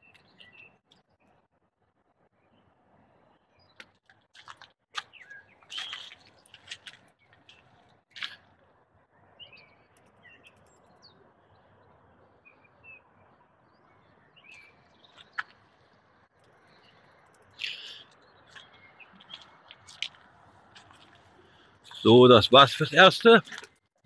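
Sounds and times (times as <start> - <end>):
birds chirping: 0.0 - 1.5, 2.4 - 23.9
footsteps on gravel: 4.4 - 8.4, 18.5 - 22.1.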